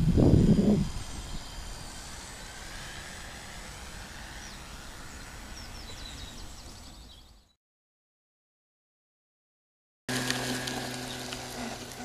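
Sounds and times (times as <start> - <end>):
wind on microphone: 0.0 - 7.3
distant electric motor whine: 0.0 - 7.6, 10.1 - 12.0
bird chirping: 0.8 - 3.0, 4.3 - 7.6.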